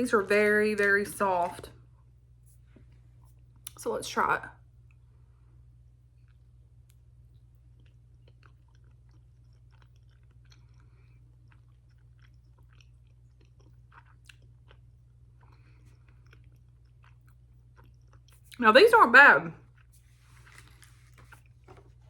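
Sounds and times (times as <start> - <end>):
faint chewing: 6.0 - 18.6, 19.6 - 22.0.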